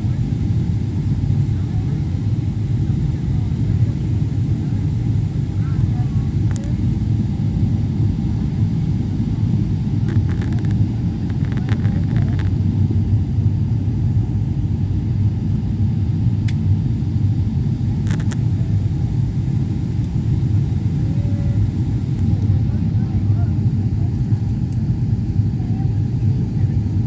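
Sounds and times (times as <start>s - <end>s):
airliner cabin rumble: 0.0s - 27.0s
faint clicks: 6.5s - 6.8s.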